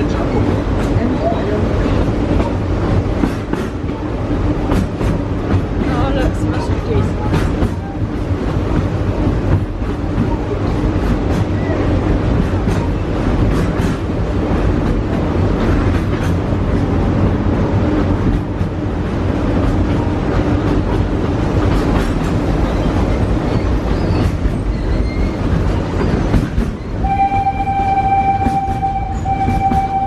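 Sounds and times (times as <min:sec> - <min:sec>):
train wheels rumbling on track: 0:00.0 - 0:30.0
steady whistle-like tone: 0:27.0 - 0:30.0.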